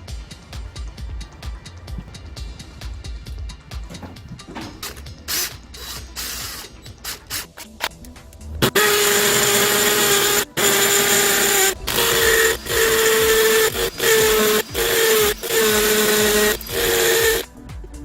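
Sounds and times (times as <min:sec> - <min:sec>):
cordless drill motor whining: 0:08.6 - 0:17.5.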